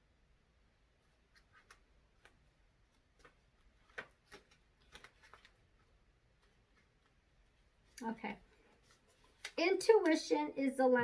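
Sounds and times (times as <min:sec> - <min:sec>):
faint clicks and taps: 0:01.3 - 0:08.1.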